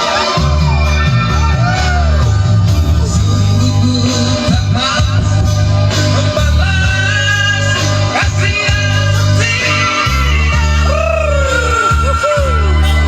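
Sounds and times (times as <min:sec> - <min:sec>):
backing music with bass line: 0:00.0 - 0:13.0
man singing high: 0:09.6 - 0:13.0.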